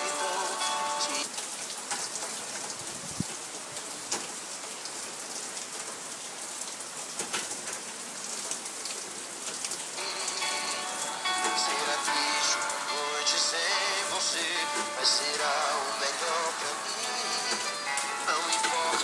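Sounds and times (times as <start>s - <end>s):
music: 0.0s - 1.2s, 10.0s - 19.0s
steady rain hiss: 0.0s - 19.0s
raindrop clicks: 1.3s - 4.8s, 5.4s - 12.8s, 14.2s - 19.0s.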